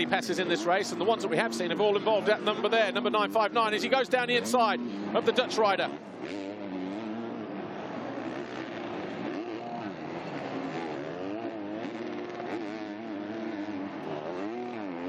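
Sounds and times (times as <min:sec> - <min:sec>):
motocross bikes revving: 0:00.0 - 0:15.0.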